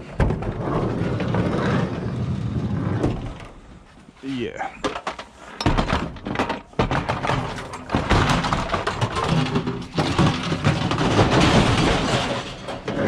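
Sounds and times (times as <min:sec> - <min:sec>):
scrap items knocking and scraping: 0:04.7 - 0:13.0.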